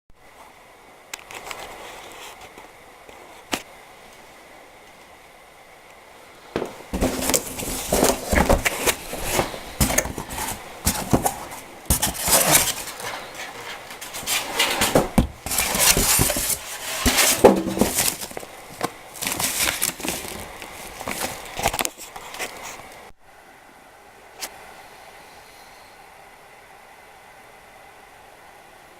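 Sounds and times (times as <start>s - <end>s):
clothes dryer parts clattering: 6.6s - 22.0s.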